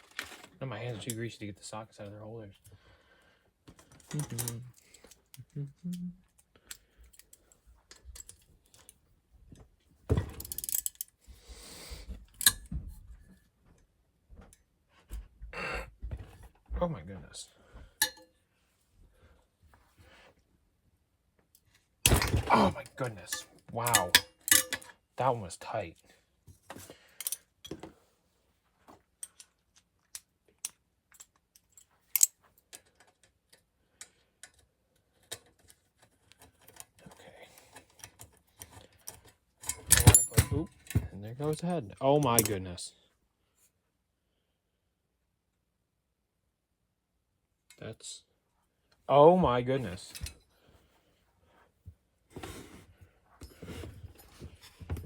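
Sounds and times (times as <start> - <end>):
metal tools clicking and clinking: 3.8 - 5.2, 10.2 - 11.2, 12.4 - 12.7, 18.0 - 18.3, 22.1 - 25.0, 27.2 - 27.8, 30.2 - 33.6, 37.6 - 41.6, 42.2 - 42.6
hand tools clinking: 22.1 - 24.9, 39.6 - 41.6.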